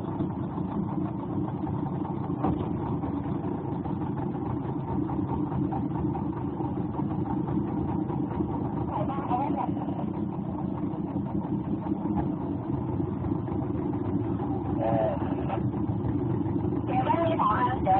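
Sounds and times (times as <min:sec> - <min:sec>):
engine running steadily: 0:00.0 - 0:17.9.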